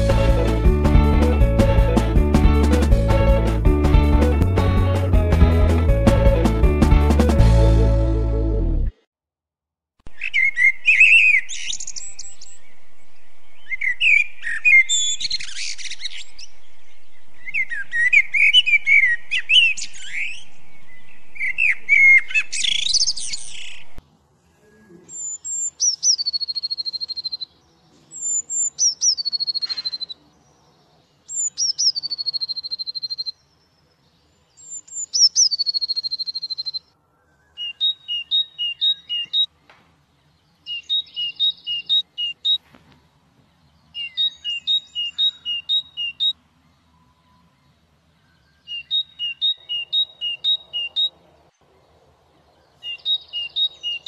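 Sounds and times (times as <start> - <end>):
falling bird calls with trill: 10.1 - 12.6, 34.6 - 39.5
songbird warbling: 10.1 - 12.8, 13.5 - 24.0, 25.1 - 27.6, 28.2 - 30.2, 31.2 - 33.5, 34.5 - 39.5, 40.6 - 42.6, 44.0 - 46.4, 48.2 - 51.2, 52.6 - 54.0.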